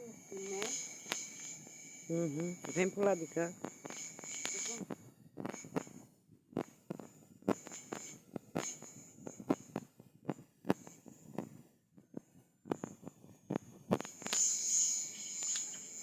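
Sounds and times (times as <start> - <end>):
crickets trilling: 0.0 - 4.8, 14.2 - 16.0.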